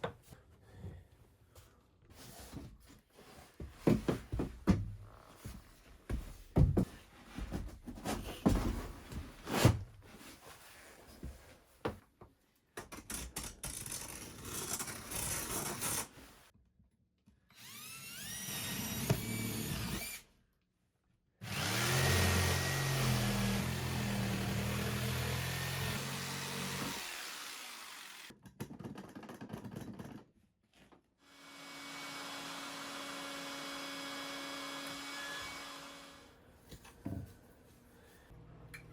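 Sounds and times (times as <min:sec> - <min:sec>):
power drill whining: 0:17.5 - 0:20.2, 0:21.4 - 0:28.3.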